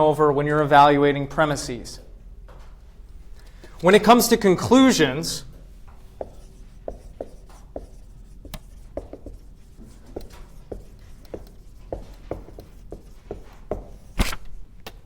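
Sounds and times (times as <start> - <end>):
chalk tapping and scraping on board: 5.8 - 14.2.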